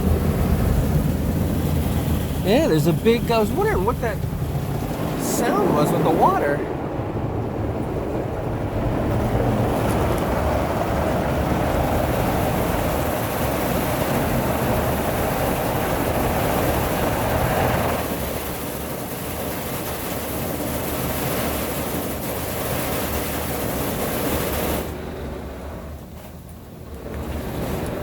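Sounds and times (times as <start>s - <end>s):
car wash water spraying: 0.0s - 6.6s.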